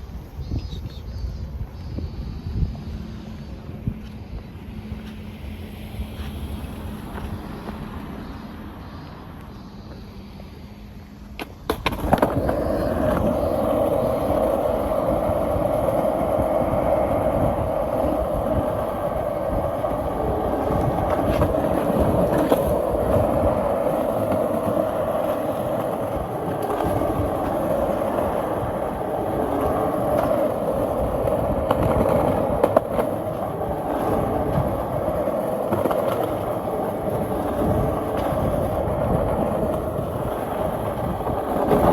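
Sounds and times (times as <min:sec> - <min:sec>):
skateboard wheels rolling on pavement: 0:00.0 - 0:41.9
skateboard clacks: 0:11.1 - 0:41.9.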